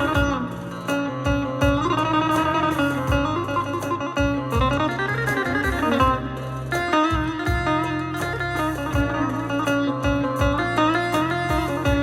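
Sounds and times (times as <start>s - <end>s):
electric lute folk melody: 0.0s - 12.0s
low drum beats: 0.0s - 12.0s.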